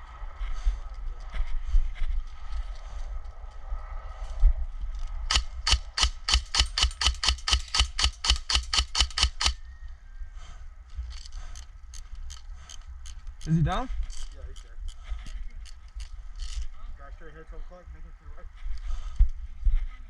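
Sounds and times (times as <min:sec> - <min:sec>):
airsoft gun rapid firing: 0:05.3 - 0:09.6.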